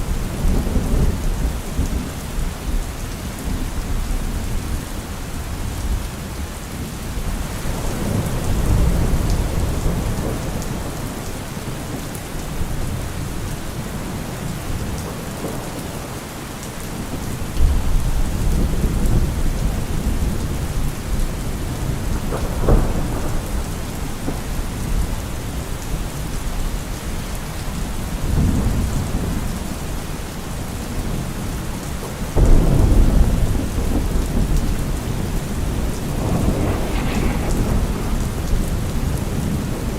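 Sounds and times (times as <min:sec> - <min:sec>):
rain falling on trees: 0:00.0 - 0:39.9
low rolling thunder: 0:07.1 - 0:16.1, 0:17.0 - 0:39.9.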